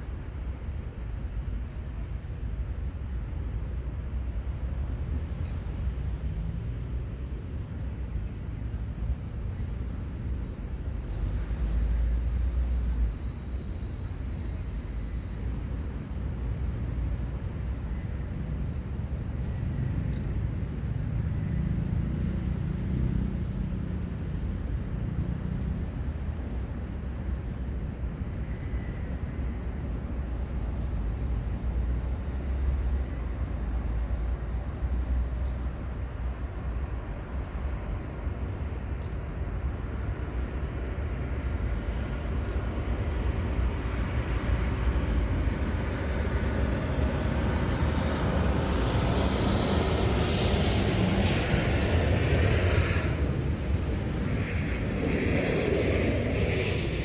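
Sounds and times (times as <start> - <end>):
constant low rumble: 0.0 - 57.0
jet airliner passing: 9.2 - 57.0.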